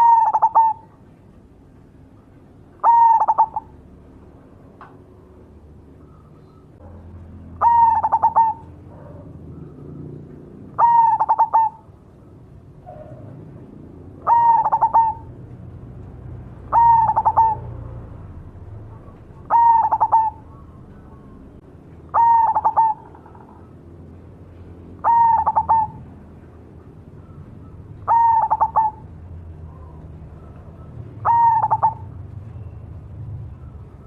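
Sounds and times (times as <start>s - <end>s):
dove cooing: 0.0s - 1.1s, 2.8s - 3.8s, 7.6s - 12.1s, 12.8s - 15.5s, 16.6s - 23.8s, 25.0s - 26.2s, 27.2s - 32.7s.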